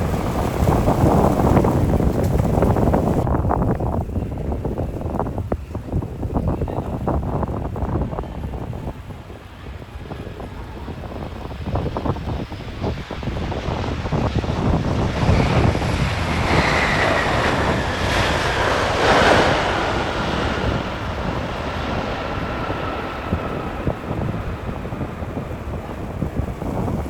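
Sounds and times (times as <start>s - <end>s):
jet airliner passing: 0.0s - 27.0s
wind buffeting microphone: 0.0s - 27.0s.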